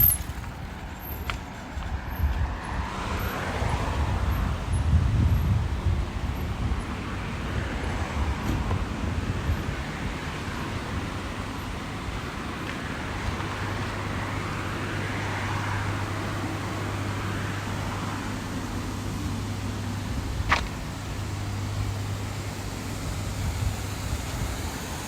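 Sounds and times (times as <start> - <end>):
car tyres hissing on wet street: 0.0 - 25.0.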